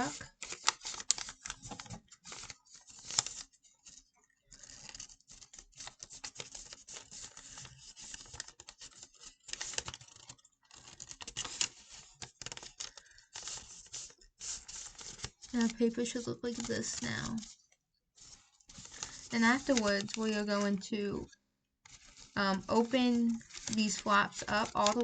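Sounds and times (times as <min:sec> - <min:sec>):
paper rustling and crinkling: 0:00.0 - 0:21.3, 0:21.9 - 0:25.0.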